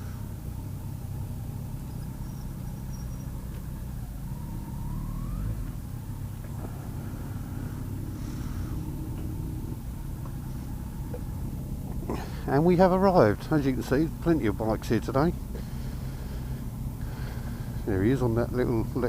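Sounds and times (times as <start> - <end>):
short rising whine: 0.0 - 12.6
motorcycle engine idling: 0.0 - 19.0.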